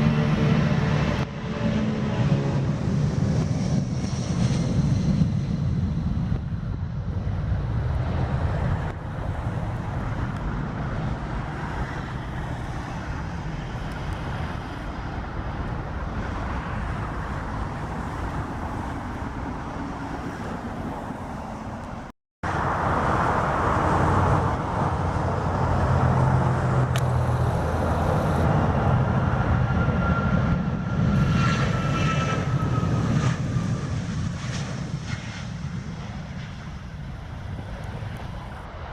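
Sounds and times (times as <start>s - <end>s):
high engine whine: 0.0s - 38.9s
jet engines rumbling: 0.0s - 38.9s.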